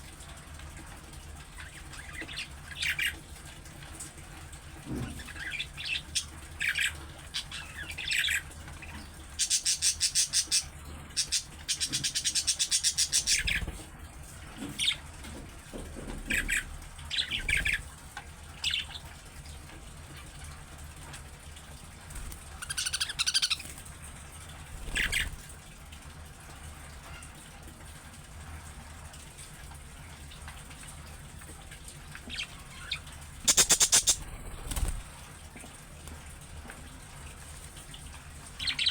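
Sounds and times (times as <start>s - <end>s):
budgerigars chirping and chattering: 5.2s - 13.7s, 16.2s - 17.8s, 22.6s - 23.7s, 24.8s - 25.3s, 32.2s - 35.0s.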